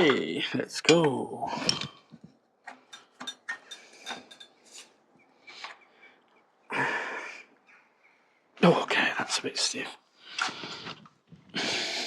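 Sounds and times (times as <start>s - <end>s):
spanners clinking on metal: 2.7s - 4.6s.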